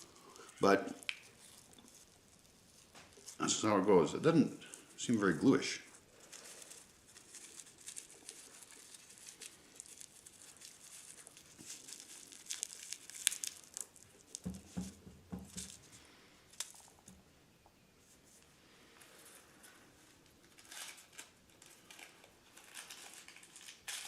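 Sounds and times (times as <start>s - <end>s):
rolling paper crinkling: 0.0s - 17.2s, 18.0s - 24.0s
soft knocks: 14.4s - 15.7s.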